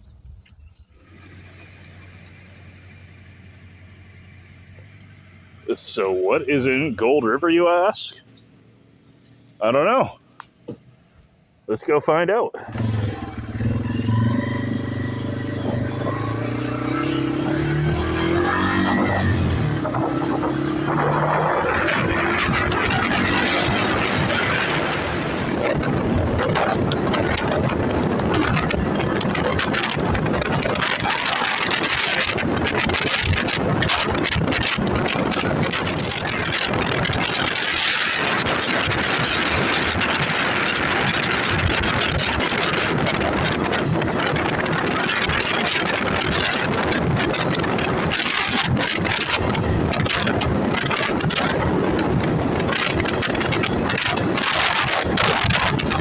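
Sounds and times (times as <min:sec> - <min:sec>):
wind noise on microphone: 0:00.0 - 0:02.2, 0:12.6 - 0:56.0
motorcycle engine running: 0:12.6 - 0:56.0.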